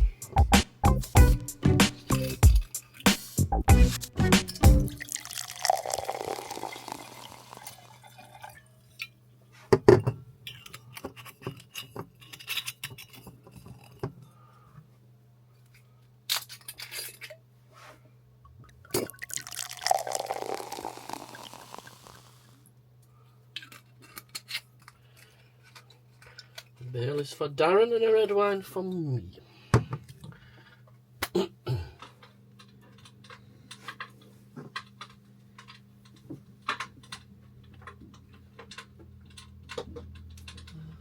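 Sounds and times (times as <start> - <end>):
liquid pouring: 4.9 - 8.7, 19.0 - 22.6
glasses clinking: 19.2 - 22.2.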